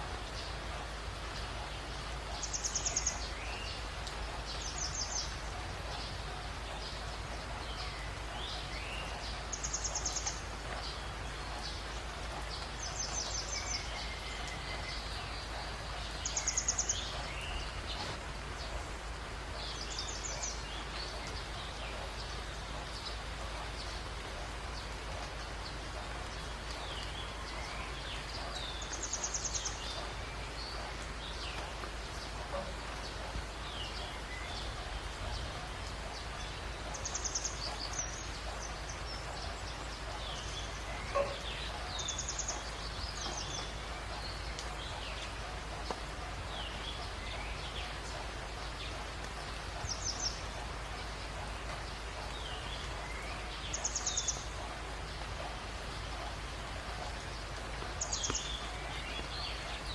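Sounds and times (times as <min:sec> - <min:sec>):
small birds chirping: 0:00.0 - 0:59.9
steady background hiss: 0:00.0 - 0:59.9.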